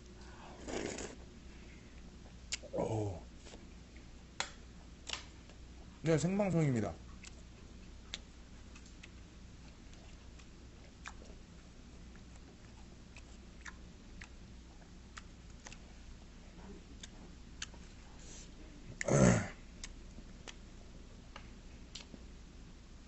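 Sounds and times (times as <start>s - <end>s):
faint chewing: 0.0s - 2.7s, 7.0s - 19.1s, 19.7s - 22.2s.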